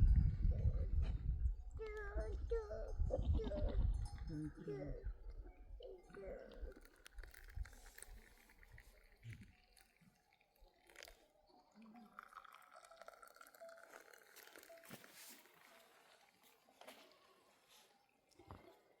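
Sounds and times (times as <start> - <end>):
sheep chewing grass: 6.1 - 10.1.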